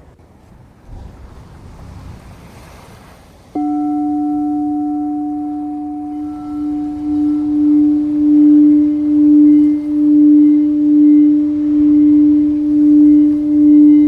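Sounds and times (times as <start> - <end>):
singing bowl ringing tone: 3.6 - 14.0.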